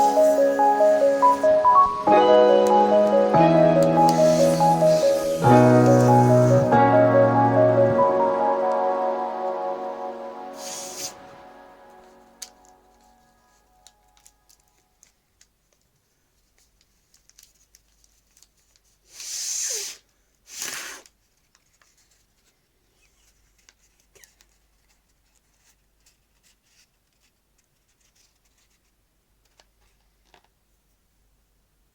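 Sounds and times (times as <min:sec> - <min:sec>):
loud paper rustling: 0:03.9 - 0:06.8
paper crinkling and tapping: 0:12.4 - 0:19.0, 0:21.2 - 0:22.6, 0:23.4 - 0:30.6.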